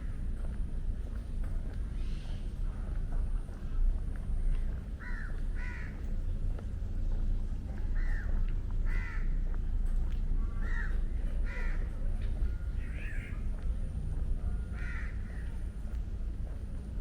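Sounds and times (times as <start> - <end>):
steady low rumble: 0.0 - 17.0
crow cawing: 5.0 - 6.0, 8.0 - 9.4, 10.6 - 11.9, 14.7 - 15.5.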